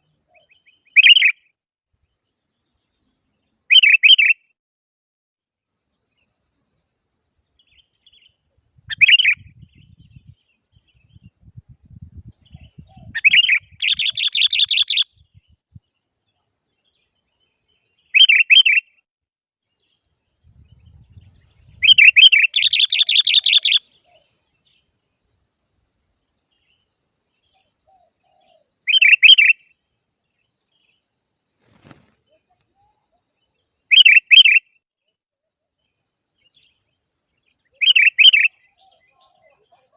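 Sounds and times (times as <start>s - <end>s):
bird chattering: 13.0s - 15.0s, 21.8s - 24.2s.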